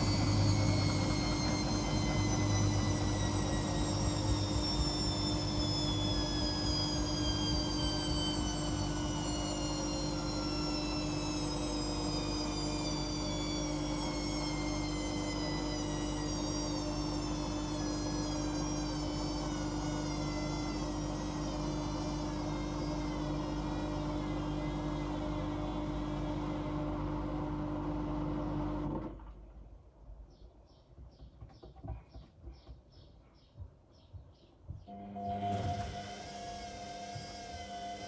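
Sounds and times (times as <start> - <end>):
constant low hum: 0.0 - 26.1
washing machine motor whine: 0.0 - 29.2, 34.9 - 38.0.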